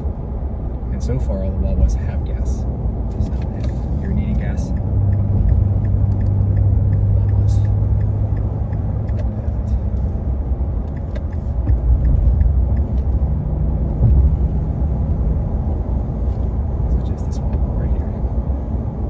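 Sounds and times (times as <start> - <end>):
car engine and tyre rumble: 0.0 - 19.0
light regular ticking: 3.2 - 14.5.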